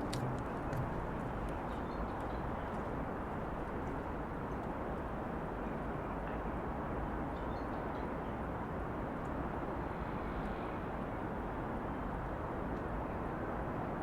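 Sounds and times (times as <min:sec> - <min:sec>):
distant city traffic hum: 0:00.0 - 0:07.3.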